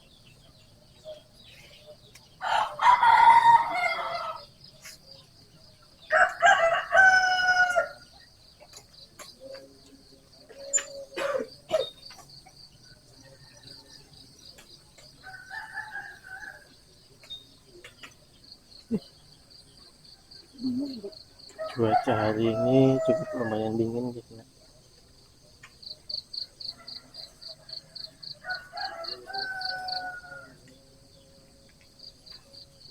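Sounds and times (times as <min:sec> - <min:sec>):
rooster crowing: 0:02.4 - 0:04.5, 0:06.1 - 0:08.1, 0:15.2 - 0:16.8, 0:21.5 - 0:24.0, 0:26.6 - 0:30.7.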